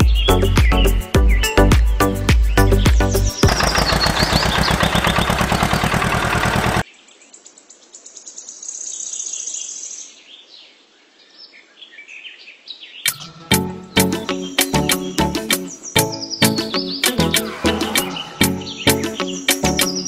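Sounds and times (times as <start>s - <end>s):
small birds chirping: 0.0s - 1.7s, 2.4s - 20.0s
music with steady beat: 0.0s - 3.4s, 13.1s - 15.7s, 16.4s - 20.0s.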